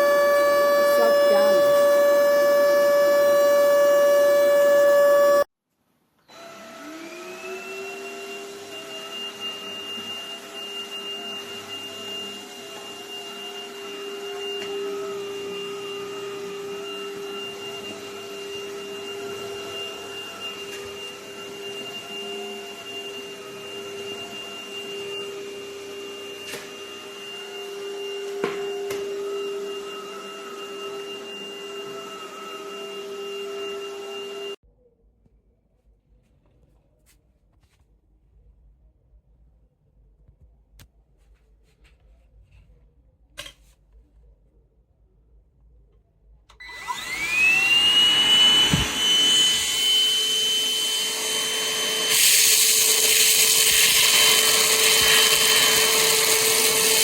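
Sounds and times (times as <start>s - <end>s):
vacuum motor whining: 0.0s - 5.5s, 6.3s - 34.6s, 46.5s - 57.0s.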